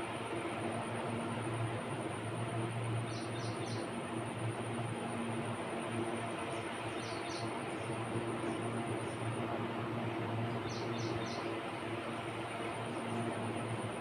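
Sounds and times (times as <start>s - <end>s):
steady hiss and low hum: 0.0s - 14.0s
bird chirping: 3.1s - 3.8s, 10.7s - 11.5s.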